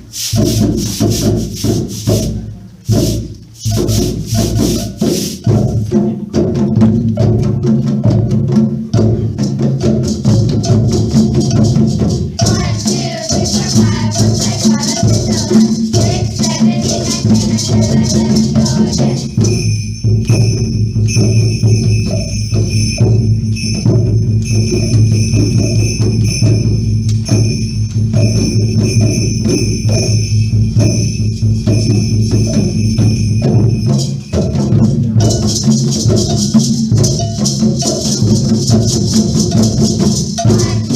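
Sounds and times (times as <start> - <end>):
shakers and rattles: 0.0 - 8.0, 9.3 - 40.9
low drum pattern: 0.0 - 40.9
ringing metallic tone: 11.3 - 38.5.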